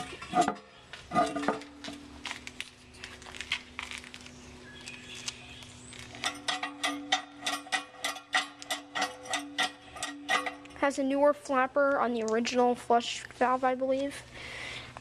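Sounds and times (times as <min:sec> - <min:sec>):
faint steady hum: 0:00.0 - 0:15.0
porcelain toilet tank clinking: 0:06.2 - 0:10.8.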